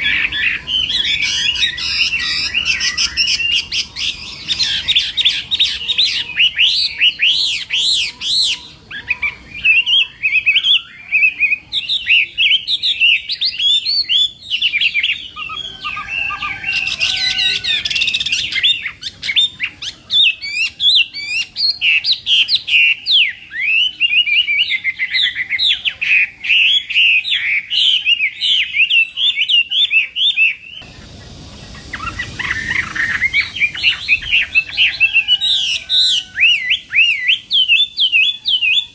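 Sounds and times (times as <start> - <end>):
bird singing whistled song: 0.0 - 38.9
hiss: 30.8 - 37.7.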